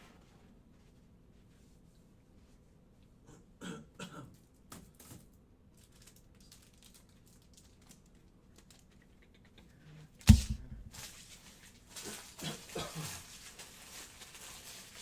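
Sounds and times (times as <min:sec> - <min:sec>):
cards clicking and tapping: 0:10.3 - 0:11.0
loud thump: 0:10.3 - 0:11.0.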